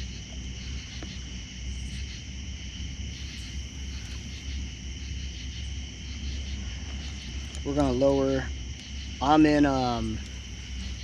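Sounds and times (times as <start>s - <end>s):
crickets trilling: 0.0s - 11.0s
low steady rumble: 0.0s - 11.0s.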